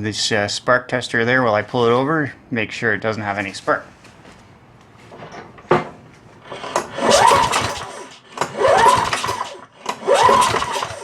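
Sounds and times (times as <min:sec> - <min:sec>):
mower recoil starter whirring: 0:06.4 - 0:11.0.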